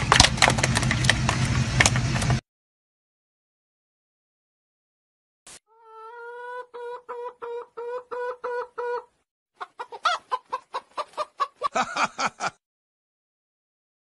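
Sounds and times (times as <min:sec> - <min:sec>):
hen clucking: 0:05.7 - 0:11.8.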